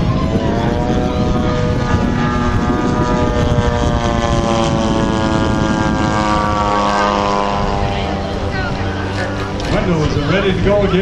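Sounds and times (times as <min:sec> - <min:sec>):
model plane engine droning: 0:00.0 - 0:11.0.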